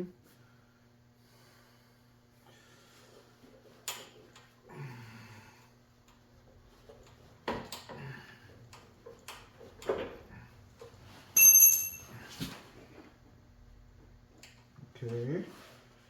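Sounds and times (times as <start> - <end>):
metallic ring: 11.4 - 12.3.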